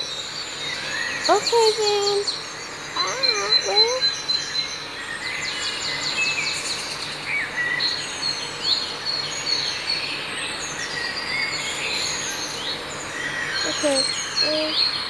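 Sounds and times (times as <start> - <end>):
birds chirping and calling: 1.0 - 4.3, 12.5 - 15.0.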